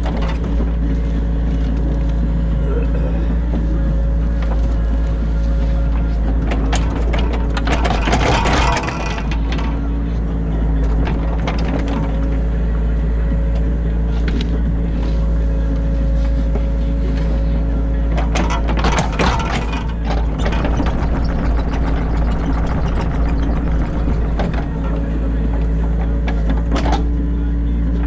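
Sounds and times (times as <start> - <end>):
knocking and clatter: 0.0 - 2.2, 5.8 - 12.4, 18.0 - 27.3
excavator diesel engine running: 0.0 - 28.0
hydraulic whine: 0.0 - 28.0.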